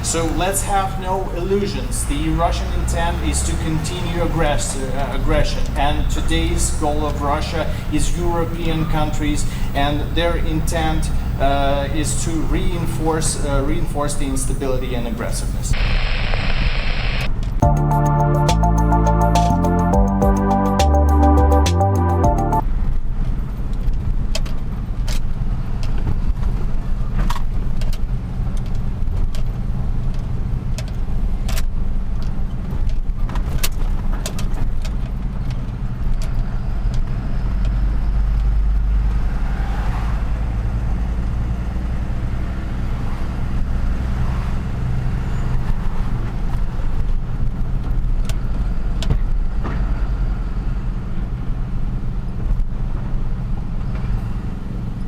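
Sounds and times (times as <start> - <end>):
truck engine and road rumble: 0.0 - 15.7.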